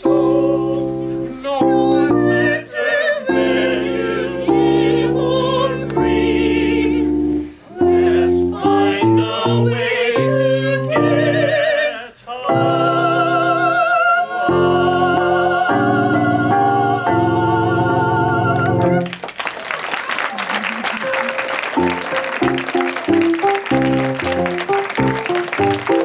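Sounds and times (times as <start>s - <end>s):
operatic singing: 0.0s - 19.0s
piano accompaniment: 0.0s - 19.2s, 20.4s - 26.0s.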